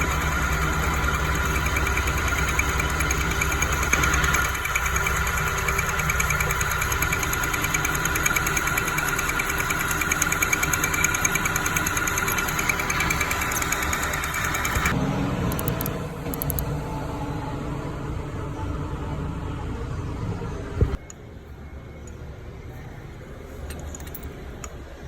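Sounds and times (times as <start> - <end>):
fast even ticking: 0.0 - 16.6
metal lathe whining: 0.0 - 18.4.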